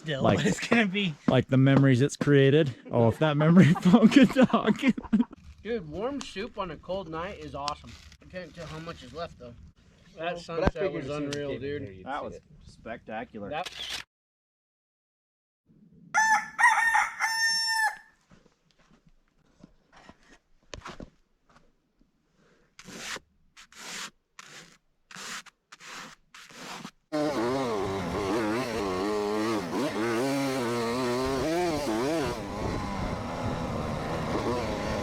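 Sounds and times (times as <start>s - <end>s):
rooster crowing: 16.2s - 18.2s
motorcycle engine running: 27.2s - 35.0s.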